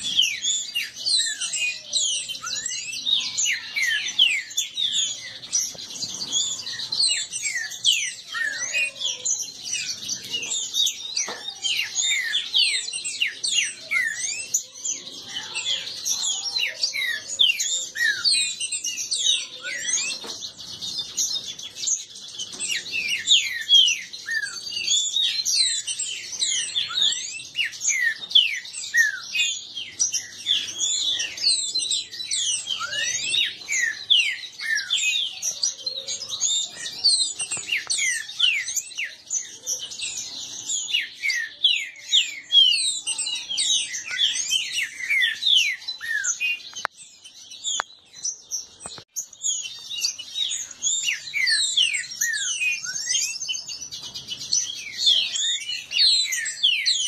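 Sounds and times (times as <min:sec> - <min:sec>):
birds whistling sharp falling notes: 0:00.0 - 0:57.0.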